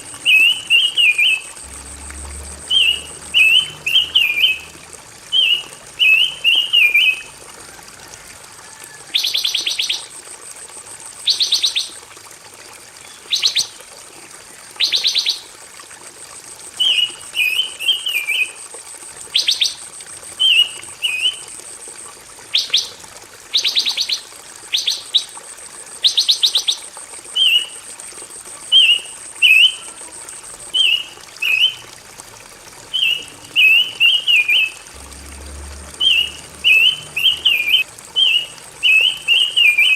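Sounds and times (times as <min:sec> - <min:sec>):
songbird warbling and trilling: 0:02.7 - 0:04.7, 0:36.0 - 0:39.9.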